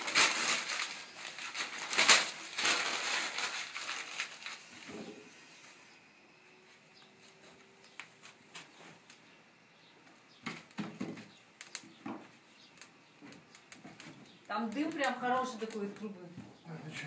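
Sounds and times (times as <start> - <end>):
paper and kindling rustling: 0.0 - 5.9.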